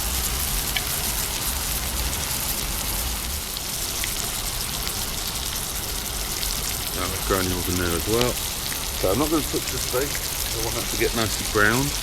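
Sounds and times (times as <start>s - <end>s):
faint crackles: 0.0s - 12.0s
steak sizzling in a pan: 0.0s - 12.0s.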